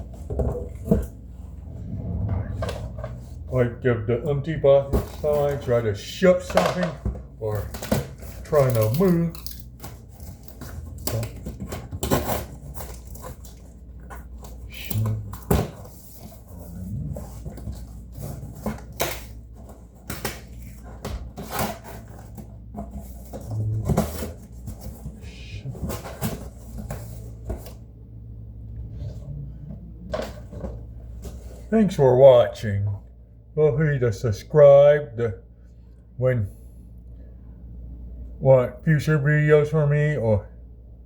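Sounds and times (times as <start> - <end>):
knocks taps and scrapes of objects: 0.0 - 3.5, 4.7 - 27.8
steady low hum: 0.0 - 41.0.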